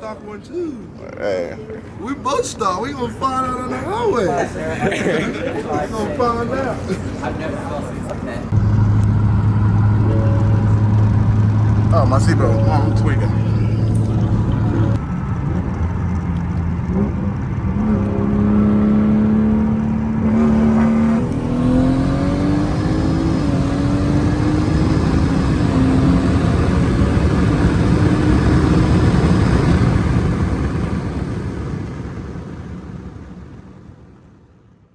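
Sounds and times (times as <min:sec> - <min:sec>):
vehicle engine accelerating hard: 0:08.5 - 0:33.9.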